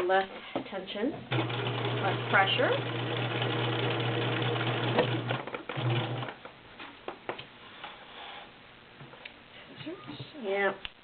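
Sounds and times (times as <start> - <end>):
sewing machine stitching: 1.3 - 6.4.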